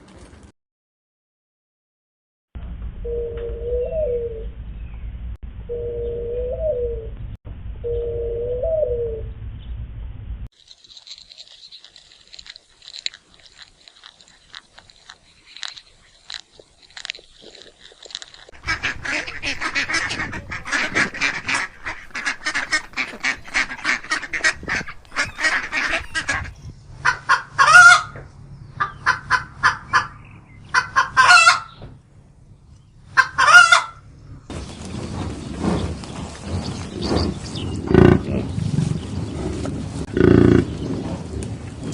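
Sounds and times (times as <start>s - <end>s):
low cooing call: 3.1s - 4.5s, 5.7s - 7.1s, 7.9s - 9.3s
rapid animal chattering: 10.6s - 27.5s, 40.1s - 40.7s
loud honking calls: 18.6s - 28.2s, 28.8s - 31.8s.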